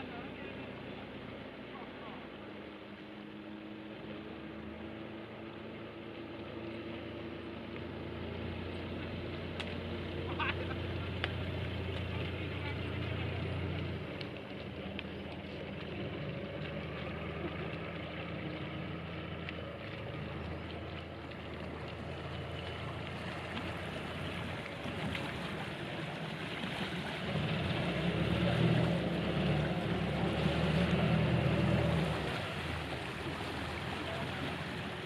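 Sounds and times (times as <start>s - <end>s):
motor running steadily: 0.0s - 35.0s.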